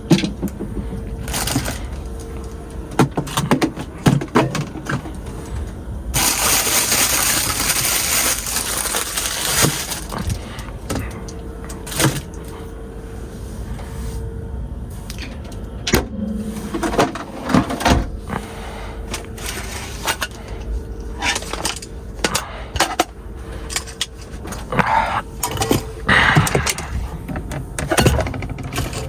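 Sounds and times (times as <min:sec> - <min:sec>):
faint steady hum: 0:00.0 - 0:29.0
objects being handled: 0:00.1 - 0:12.6.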